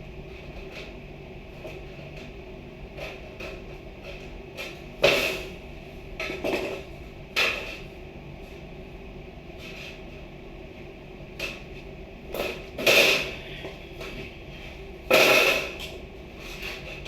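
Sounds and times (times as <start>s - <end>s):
knocks and clatters of objects: 6.2s - 7.9s.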